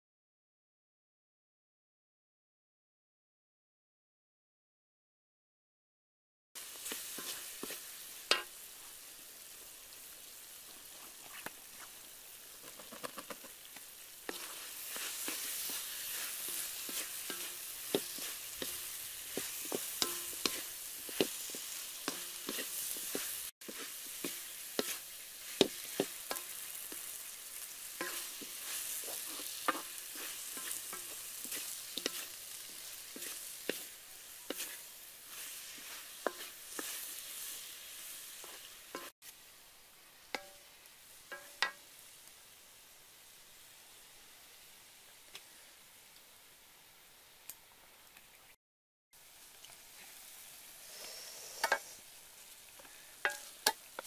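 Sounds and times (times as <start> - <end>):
wooden spatula scraping a pan: 6.6 - 8.6, 10.8 - 39.1, 50.8 - 52.0
food sizzling in a wok: 6.6 - 48.6, 49.2 - 54.0.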